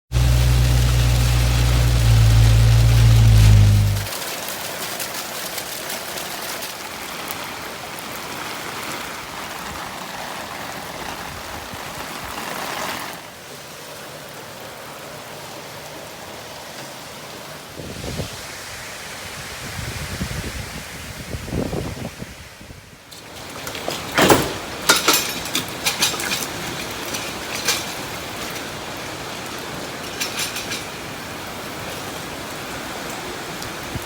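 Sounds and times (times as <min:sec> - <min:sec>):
low engine hum: 0:00.1 - 0:04.1
heavy rain hiss: 0:00.1 - 0:04.8, 0:07.1 - 0:22.5, 0:23.1 - 0:34.0.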